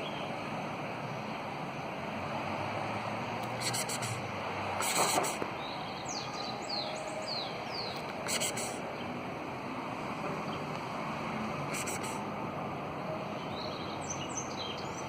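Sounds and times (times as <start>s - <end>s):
outdoor background noise: 0.0s - 15.0s
small bird chirping: 4.8s - 9.1s.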